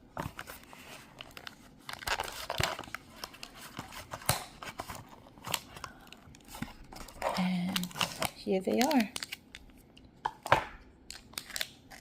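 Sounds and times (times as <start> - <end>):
packaging crinkling and tearing: 0.2 - 9.8, 11.1 - 12.0.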